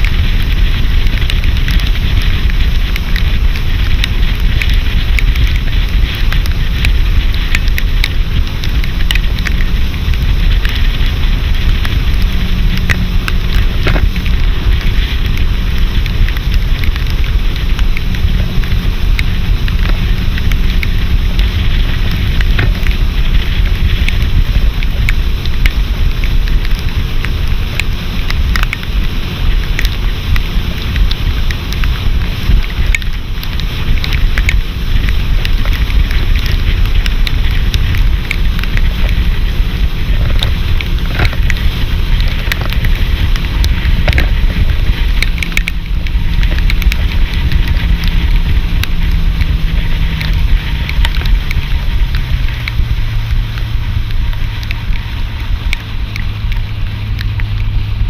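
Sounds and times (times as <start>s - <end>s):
boat motor running: 0.0s - 58.0s
wind buffeting microphone: 0.0s - 58.0s
faint clicks: 29.7s - 39.4s.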